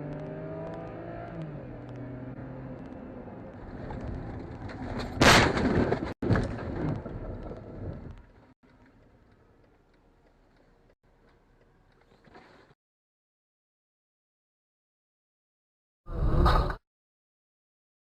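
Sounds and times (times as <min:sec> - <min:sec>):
road and engine noise: 0:00.0 - 0:12.8
car crash bang: 0:03.7 - 0:07.9.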